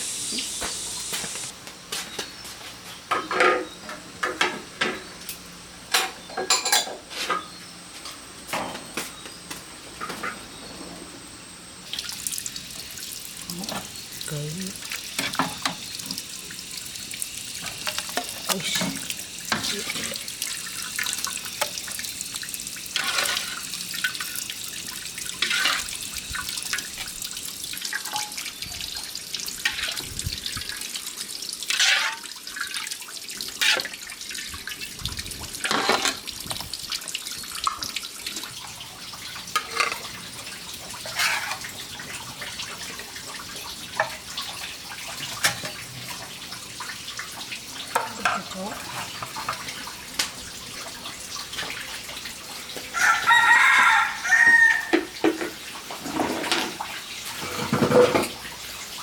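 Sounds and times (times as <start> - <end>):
tap water running: 0.0 - 1.5, 11.8 - 59.0
water splashes: 11.9 - 27.7.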